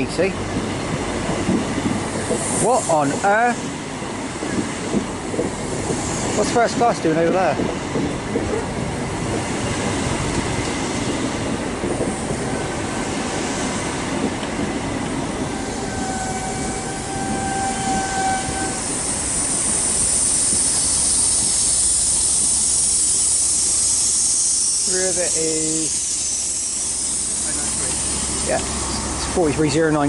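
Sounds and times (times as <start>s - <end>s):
train rumble and wheel clatter: 0.0s - 30.0s
train hiss: 1.5s - 7.7s, 8.4s - 30.0s
train squeal: 15.4s - 29.4s.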